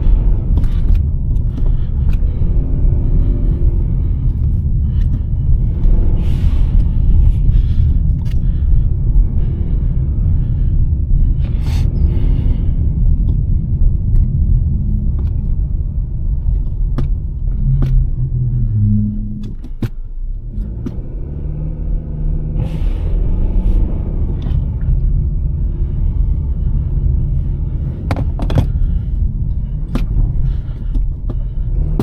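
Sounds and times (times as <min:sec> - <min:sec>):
car road and engine rumble: 0:00.0 - 0:32.0
sharp clicks and knocks: 0:19.3 - 0:21.1, 0:28.0 - 0:29.0.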